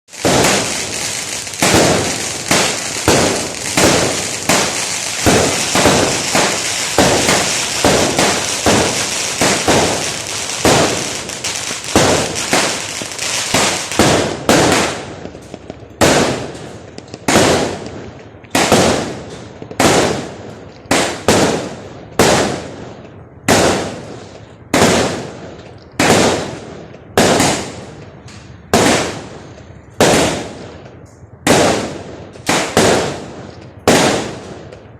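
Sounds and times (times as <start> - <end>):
fireworks crackling: 0.0 - 21.6
fireworks bursting: 0.1 - 22.8, 27.2 - 34.9.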